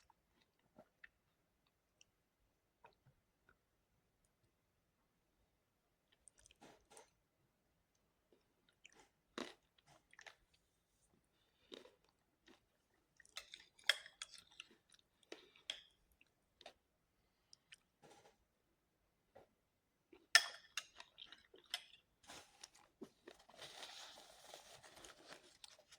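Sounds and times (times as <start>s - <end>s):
person chewing food: 6.1s - 7.2s, 8.3s - 16.8s, 17.4s - 18.4s, 20.1s - 23.5s.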